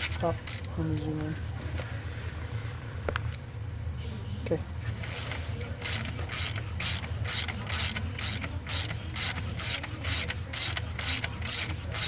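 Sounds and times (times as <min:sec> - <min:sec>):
ratchet clicking: 0:05.0 - 0:12.0.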